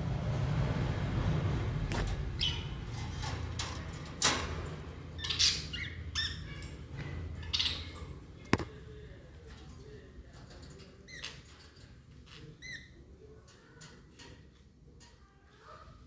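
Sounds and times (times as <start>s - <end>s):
budgerigars chirping and squawking: 2.4s - 2.8s, 5.2s - 6.6s.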